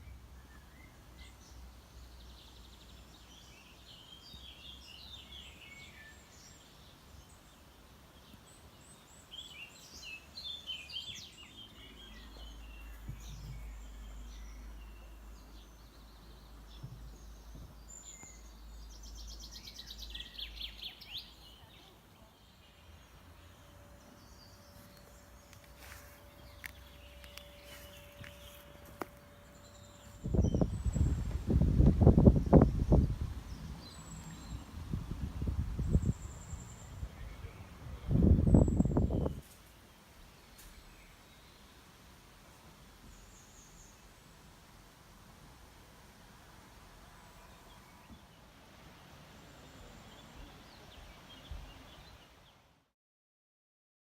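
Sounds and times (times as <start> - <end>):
songbirds singing: 0.0 - 44.6, 47.1 - 52.8
faint steady hum: 6.1 - 52.4
faint low rumble: 21.6 - 39.4.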